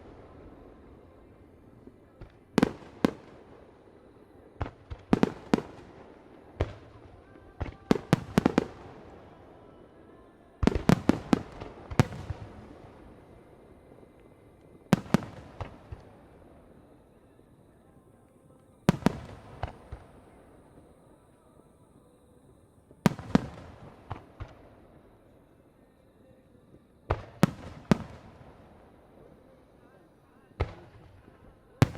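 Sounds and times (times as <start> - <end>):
fireworks bursting in bangs: 4.6 - 9.8, 10.6 - 13.5, 14.7 - 16.4, 18.9 - 21.1, 22.9 - 24.8, 27.1 - 28.8, 30.4 - 31.9.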